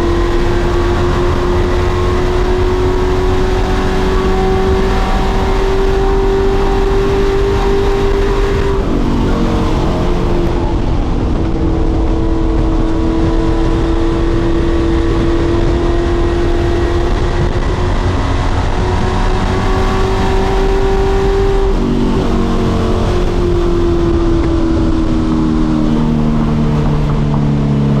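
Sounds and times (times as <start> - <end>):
race truck engines roaring: 0.0 - 28.0.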